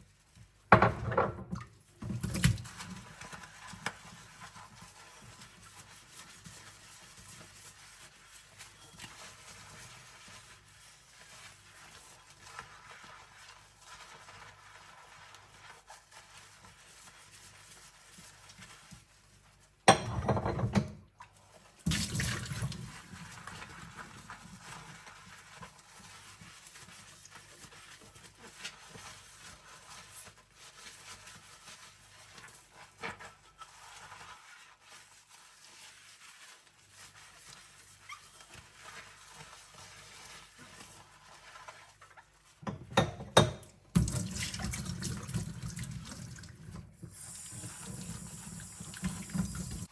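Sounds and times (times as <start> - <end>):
scrubbing bowls: 0.6 - 49.9
water bursts from tap: 43.9 - 49.9.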